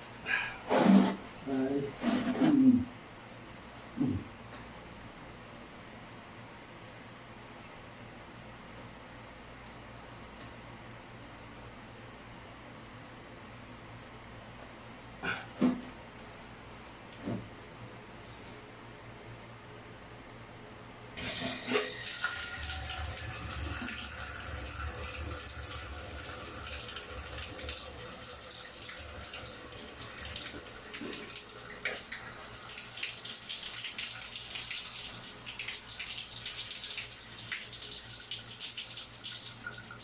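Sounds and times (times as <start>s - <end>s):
shower water running: 21.7s - 40.0s.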